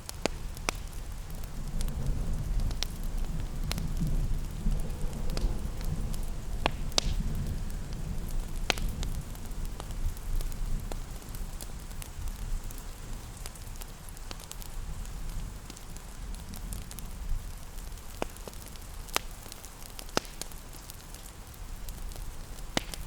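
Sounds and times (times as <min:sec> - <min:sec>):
steady low rumble: 0:00.0 - 0:12.0
rain hissing: 0:00.0 - 0:23.0
wood fire crackling and popping: 0:00.0 - 0:23.0.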